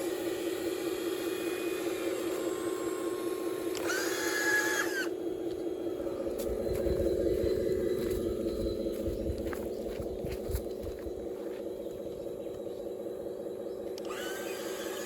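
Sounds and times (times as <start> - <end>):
electric motor whirring: 0.0 - 8.9, 13.8 - 15.0
high whine: 0.0 - 15.0
low rumbling: 5.2 - 14.2.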